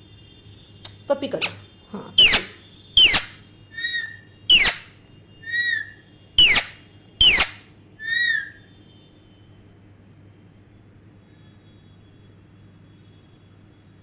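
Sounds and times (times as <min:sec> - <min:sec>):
parrot smacking kiss calls: 0:02.2 - 0:04.9, 0:05.5 - 0:08.5
parrot whistles: 0:02.2 - 0:08.6.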